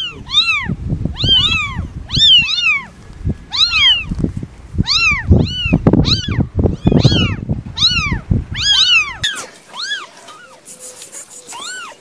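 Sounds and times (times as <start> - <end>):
cat meowing: 0.0 - 2.9, 3.5 - 4.1, 4.8 - 12.0
low rumbling noise: 0.0 - 9.2.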